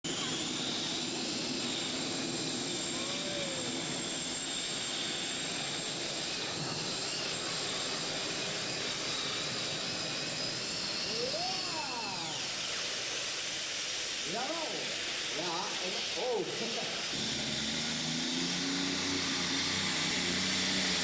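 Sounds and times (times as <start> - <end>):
high whine: 1.2 - 13.4
rising and falling tone: 10.8 - 12.6, 17.2 - 21.0
vehicle engine noise: 17.1 - 21.0.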